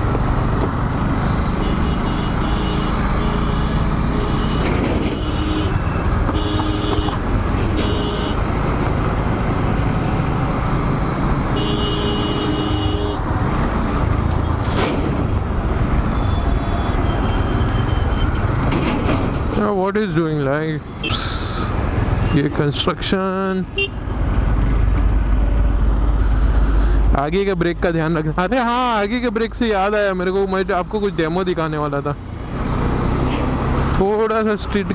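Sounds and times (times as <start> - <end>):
short horn blasts: 1.6 - 7.2, 7.8 - 8.4, 11.6 - 13.2
motorcycle engine and wind rumble: 2.9 - 7.8, 8.4 - 11.6.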